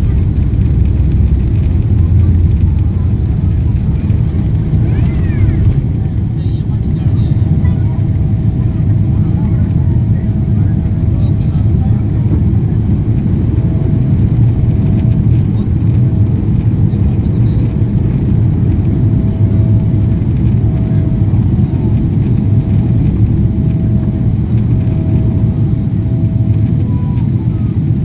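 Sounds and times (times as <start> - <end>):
jet engine and airflow rumble: 0.0 - 28.0.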